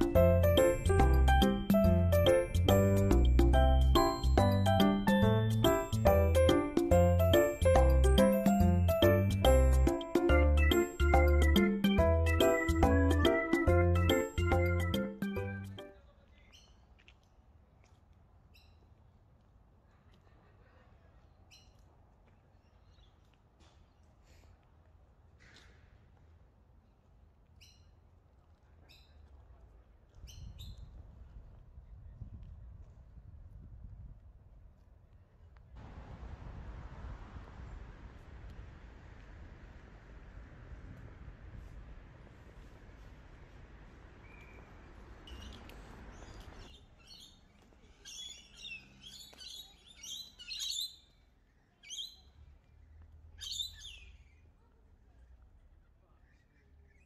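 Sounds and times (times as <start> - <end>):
birds calling: 10.3 - 15.7, 44.2 - 51.2
faint low rumble: 29.4 - 46.8
outdoor hiss: 35.8 - 46.2.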